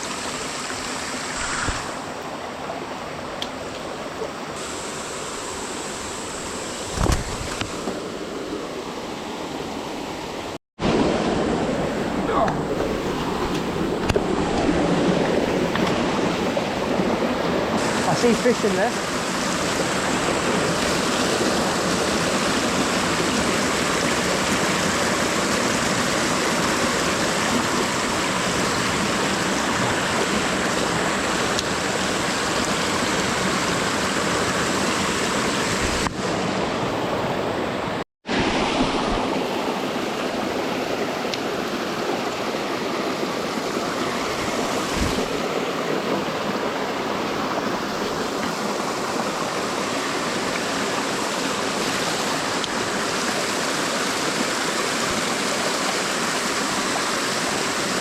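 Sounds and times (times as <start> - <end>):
water rushing over cascades: 0.0 - 58.0.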